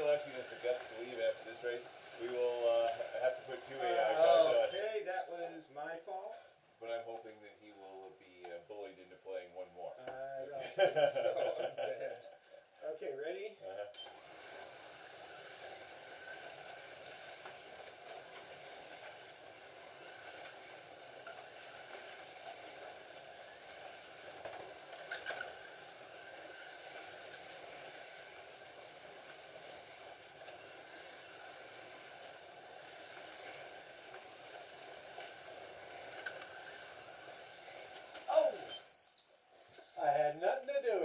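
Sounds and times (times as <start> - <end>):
slot car motors whirring: 0.0 - 5.0, 14.0 - 39.0
cars rattling along track slots: 14.5 - 38.3.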